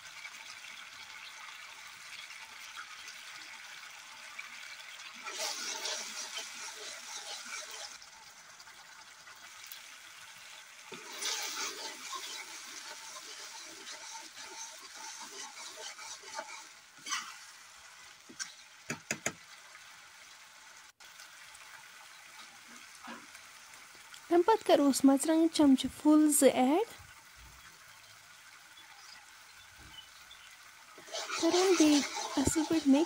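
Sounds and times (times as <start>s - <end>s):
sauce sizzling and bubbling: 0.0s - 33.0s
metal ladle scraping pan: 5.2s - 8.0s, 10.9s - 17.6s, 31.0s - 33.0s
sharp knocks: 18.9s - 19.4s.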